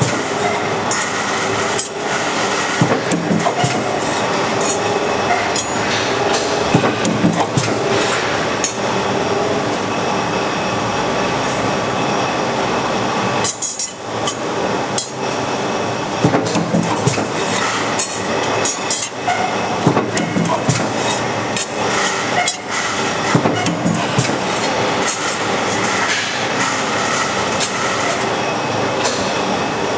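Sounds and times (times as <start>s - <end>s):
train running past: 0.0s - 29.9s
metallic clanks: 2.7s - 8.9s, 16.2s - 28.3s.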